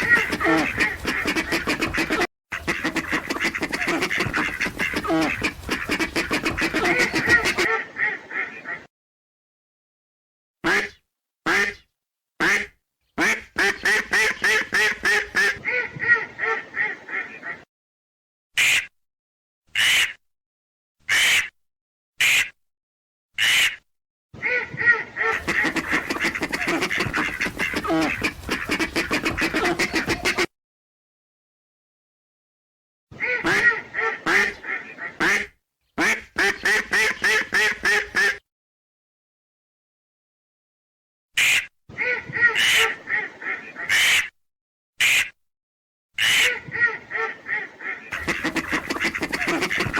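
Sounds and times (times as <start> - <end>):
duck quacking: 0.0 - 8.9, 10.7 - 11.8, 12.4 - 17.6, 19.8 - 20.1, 21.1 - 21.5, 23.4 - 23.8, 24.4 - 30.5, 33.2 - 38.4, 41.4 - 44.3, 46.2 - 49.9.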